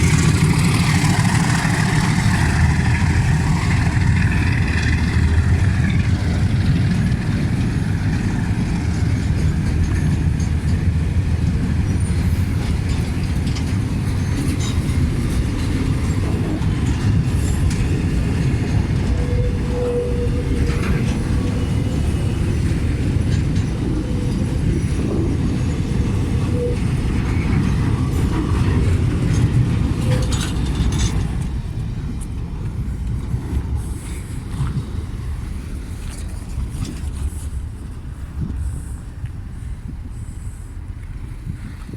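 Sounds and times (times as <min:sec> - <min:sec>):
train rumbling on rails: 0:00.0 - 0:41.9
wheel squeals: 0:19.0 - 0:28.6.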